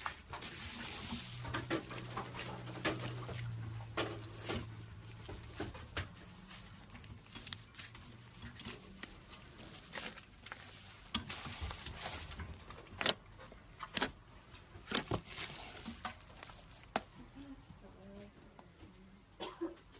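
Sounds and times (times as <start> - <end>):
slime squelching and popping: 6.1 - 17.1.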